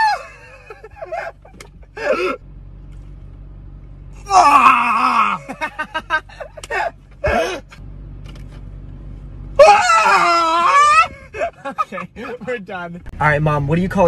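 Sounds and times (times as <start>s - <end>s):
men laughing: 0.0s - 2.4s, 5.0s - 7.8s, 9.7s - 12.7s.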